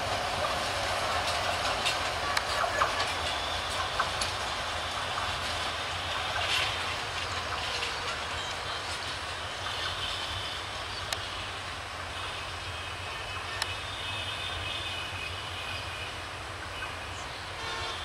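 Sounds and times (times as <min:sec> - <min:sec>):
wheels clicking over rail joints: 0:00.0 - 0:11.8
train wheels rumbling on track: 0:00.0 - 0:18.0.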